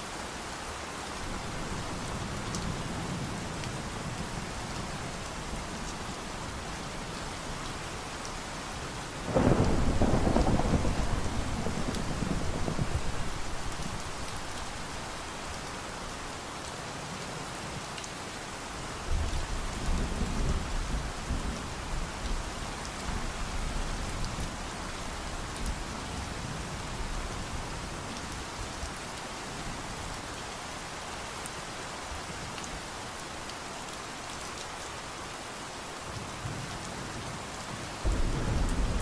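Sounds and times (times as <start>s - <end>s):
heavy rain: 0.0s - 39.0s
thunder rumbling: 9.3s - 14.8s, 38.1s - 39.0s.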